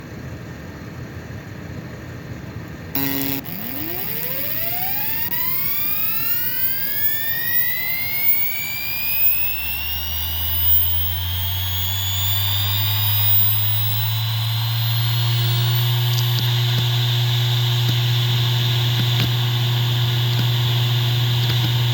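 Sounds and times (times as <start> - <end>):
short burst of noise: 3.0 - 16.4
low hum: 3.0 - 21.3
hard drive spinning up whine: 3.0 - 21.9.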